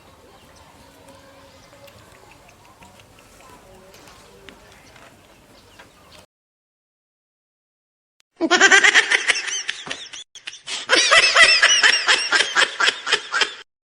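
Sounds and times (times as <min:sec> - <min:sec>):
high-pitched laughter: 0:08.4 - 0:13.6.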